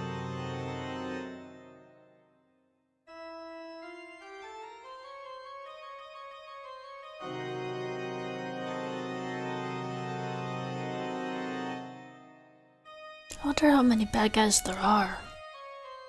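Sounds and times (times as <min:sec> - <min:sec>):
organ chords and melody: 0:00.0 - 0:02.2, 0:03.1 - 0:12.6.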